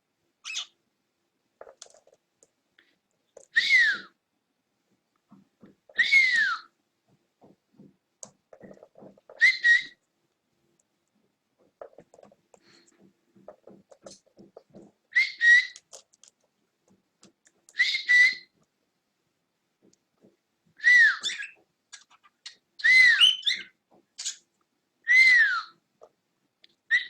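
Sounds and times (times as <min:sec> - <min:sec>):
cockatiel whistled calls: 0:00.4 - 0:00.7, 0:03.5 - 0:04.1, 0:05.9 - 0:06.7, 0:09.3 - 0:10.0, 0:15.1 - 0:15.8, 0:17.8 - 0:18.5, 0:20.8 - 0:21.6, 0:22.8 - 0:24.4, 0:25.1 - 0:25.8.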